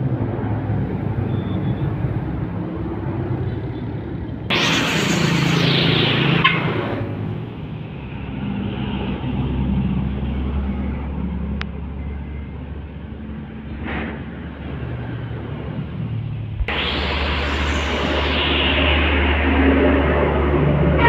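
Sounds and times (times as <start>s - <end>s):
heavy vehicle engines rumbling: 0.0s - 21.0s
vehicle rushing past: 4.5s - 11.4s, 13.8s - 21.0s.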